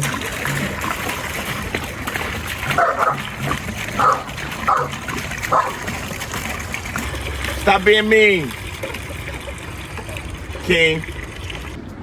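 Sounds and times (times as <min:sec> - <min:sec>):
dog barking and yipping: 0:02.7 - 0:03.3, 0:04.0 - 0:05.9.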